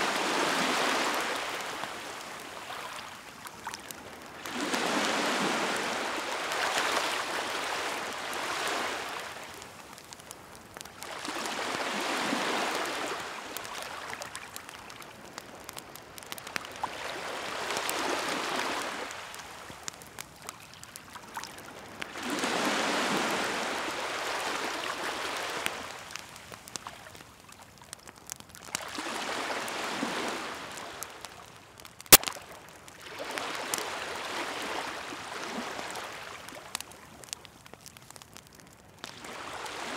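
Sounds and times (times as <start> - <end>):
waves washing ashore: 0.0 - 10.2, 11.0 - 14.6, 16.2 - 19.8, 21.4 - 26.2, 28.7 - 31.3, 33.0 - 36.8, 39.1 - 39.9
bonfire crackling: 0.0 - 39.9.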